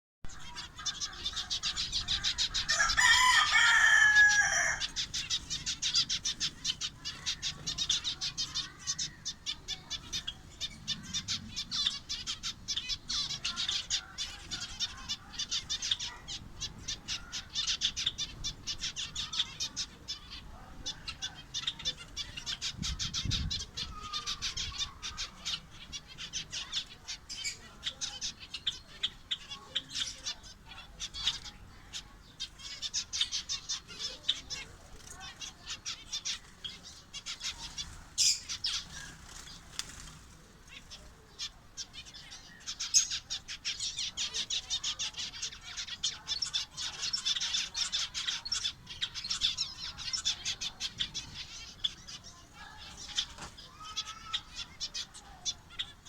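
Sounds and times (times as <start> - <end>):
finches chirping: 0.3 - 56.0
rooster crowing: 2.6 - 5.0.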